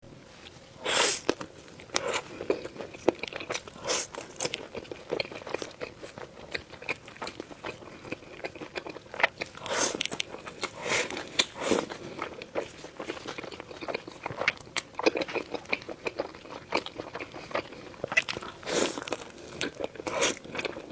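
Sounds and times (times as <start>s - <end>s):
person chewing crunchy food: 0.4s - 20.9s.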